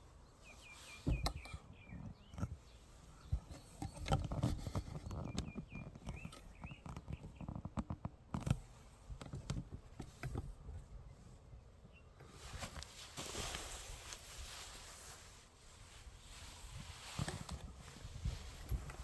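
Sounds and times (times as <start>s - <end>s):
bird chirps: 0.2s - 4.1s, 5.0s - 7.6s
rustling: 12.2s - 19.0s.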